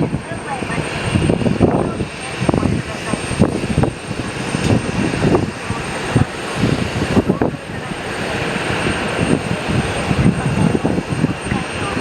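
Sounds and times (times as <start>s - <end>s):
aircraft engines running: 0.0s - 12.0s
wind buffeting the microphone: 0.0s - 12.0s.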